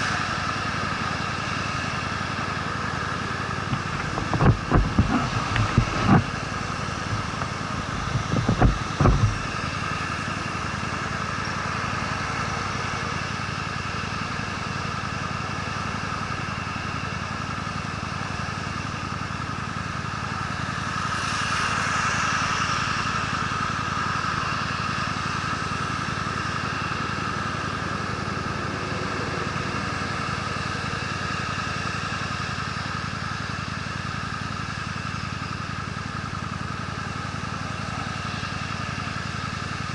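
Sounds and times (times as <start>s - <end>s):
motorcycle engine running: 0.0s - 39.9s
road and wind noise: 0.0s - 39.9s
low thumps: 3.7s - 9.6s.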